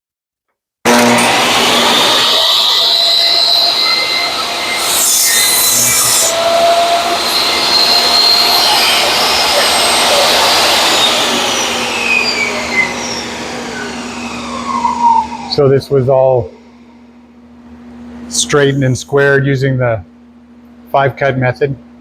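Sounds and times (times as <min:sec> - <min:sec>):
saw blade cutting a board: 0:00.9 - 0:14.8
table saw running: 0:00.9 - 0:17.3, 0:18.2 - 0:19.2
dust collector running: 0:00.9 - 0:21.6.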